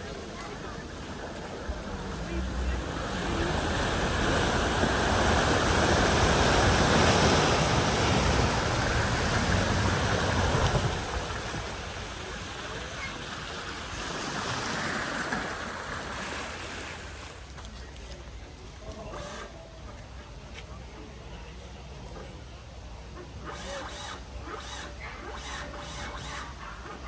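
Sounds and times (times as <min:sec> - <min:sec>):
floodwater splashing and rushing: 0:00.0 - 0:17.7.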